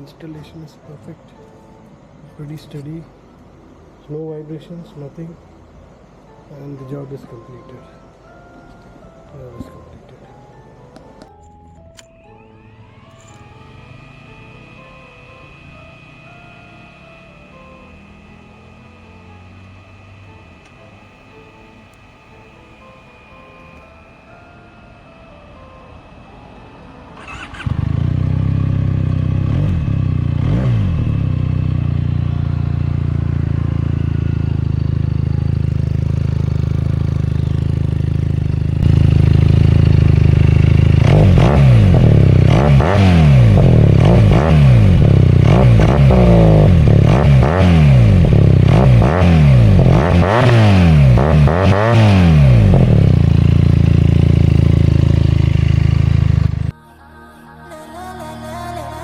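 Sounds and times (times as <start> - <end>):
throttle blips: 11.9 - 36.2
motorcycle engine idling: 12.6 - 23.8, 27.1 - 56.7.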